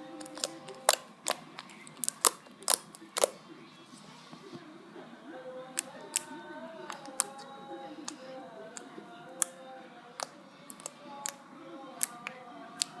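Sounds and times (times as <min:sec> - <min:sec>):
background music: 0:00.0 - 0:04.0, 0:04.7 - 0:13.0.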